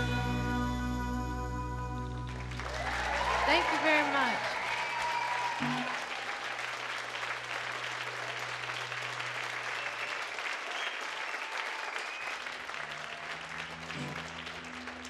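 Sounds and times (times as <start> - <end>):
audience applauding: 2.0 - 15.0
faint whistles: 9.7 - 11.2, 11.9 - 12.5.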